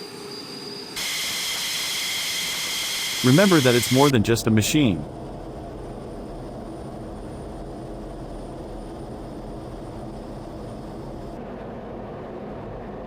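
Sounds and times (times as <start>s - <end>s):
jet engine noise: 1.0s - 4.5s.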